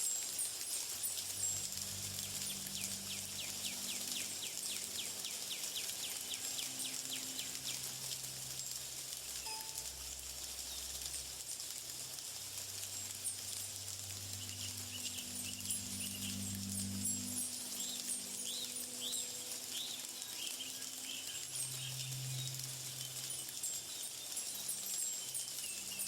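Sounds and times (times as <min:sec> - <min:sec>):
steady high hiss: 0:00.0 - 0:26.0
soft low music notes: 0:00.1 - 0:26.0
short high chirps: 0:09.4 - 0:10.0.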